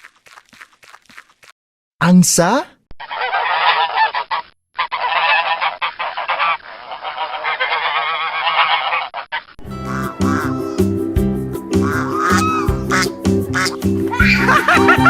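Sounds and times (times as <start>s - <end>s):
geese honking: 3.0s - 11.0s, 11.7s - 15.0s.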